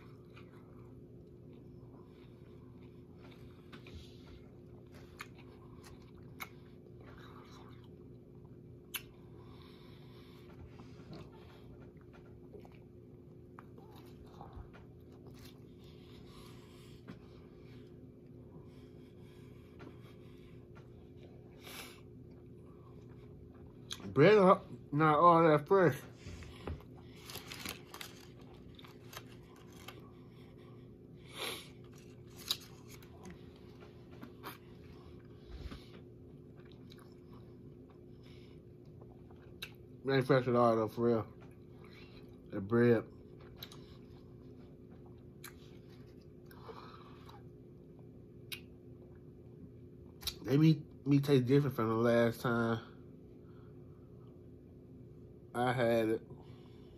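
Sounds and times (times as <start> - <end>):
person chewing food: 0.0 - 24.2, 26.1 - 40.0, 43.2 - 49.2
low hum: 0.0 - 56.9.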